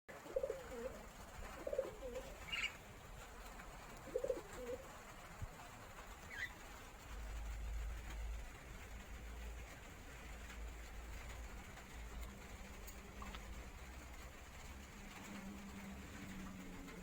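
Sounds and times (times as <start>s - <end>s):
bird cooing: 0.1s - 2.9s, 3.9s - 5.0s.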